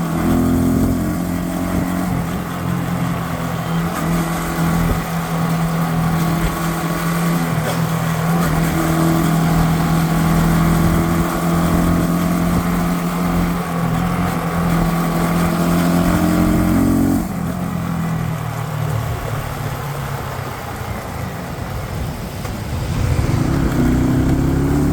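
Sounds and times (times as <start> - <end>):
motorcycle engine cruising: 0.0 - 24.9
wind rush: 21.6 - 24.9.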